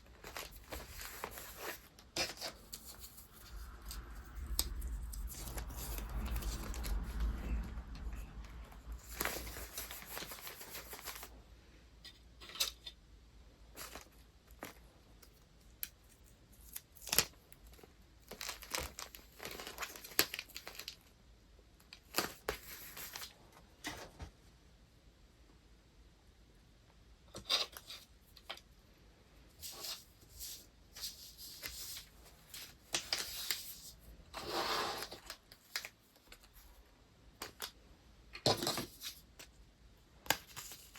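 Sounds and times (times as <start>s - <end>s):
paper wrapping rustling and crinkling: 0.0s - 11.3s, 13.7s - 15.4s, 16.1s - 21.1s, 21.9s - 24.1s, 29.6s - 36.8s, 40.2s - 40.9s.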